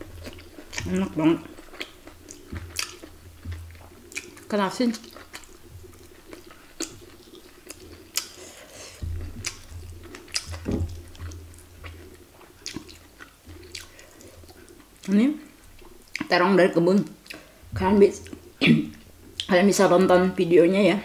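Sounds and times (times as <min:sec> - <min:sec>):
person chewing food: 0:00.0 - 0:16.4, 0:17.0 - 0:19.5
low steady hum: 0:00.0 - 0:21.0
wet mouth clicks: 0:01.6 - 0:15.1.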